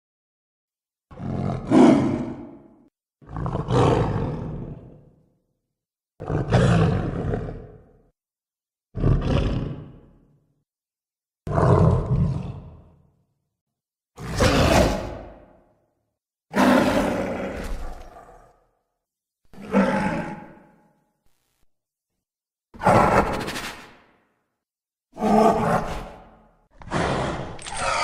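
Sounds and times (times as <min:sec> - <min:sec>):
troll creature calls: 0:26.8 - 0:28.0.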